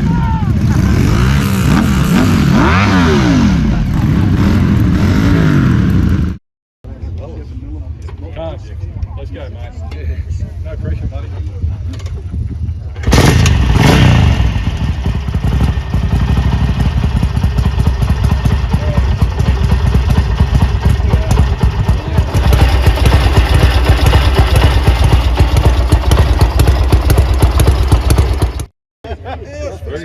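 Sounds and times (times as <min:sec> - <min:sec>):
motorcycle engine running: 0:12.1 - 0:28.7.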